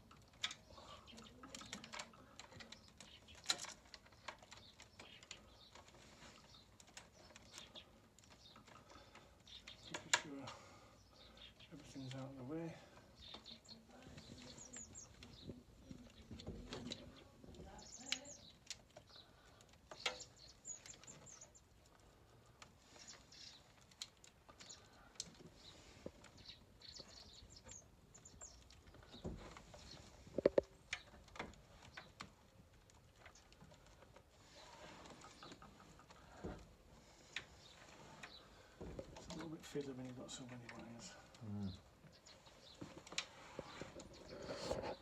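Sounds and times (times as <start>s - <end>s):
wires rustling: 0.0s - 45.0s
clicks and taps of small parts: 9.5s - 10.3s.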